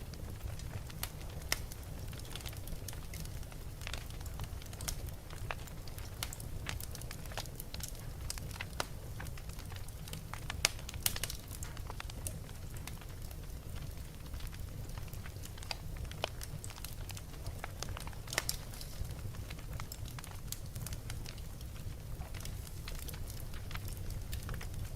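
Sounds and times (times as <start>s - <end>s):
low rumble of fire: 0.0s - 24.9s
wood fire crackling and popping: 0.0s - 24.9s.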